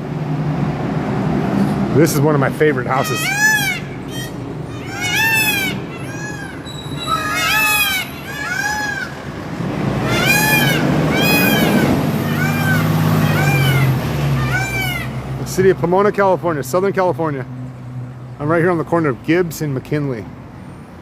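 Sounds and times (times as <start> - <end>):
traffic engine rumble: 0.0 - 21.0
peafowl calling: 2.8 - 15.2.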